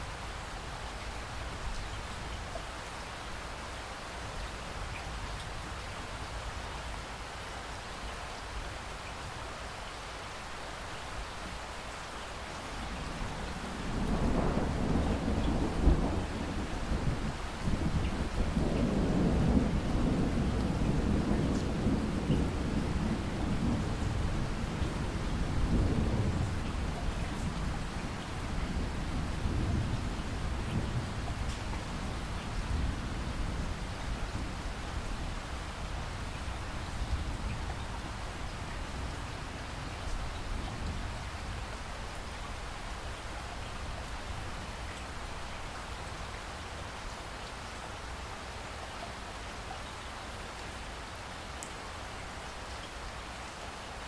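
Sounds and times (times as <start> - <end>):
steady rain: 0.0 - 54.0
thunder rumble: 12.8 - 35.4.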